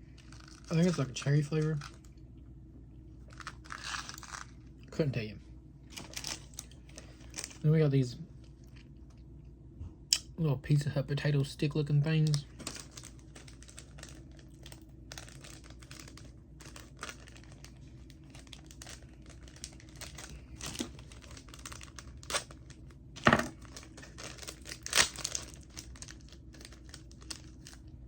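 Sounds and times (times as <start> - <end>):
plastic snack packet crinkling: 0.0 - 2.2, 3.2 - 4.7, 5.9 - 7.7, 12.1 - 28.0
packet being torn open: 3.3 - 4.6, 5.9 - 7.6, 12.2 - 27.8.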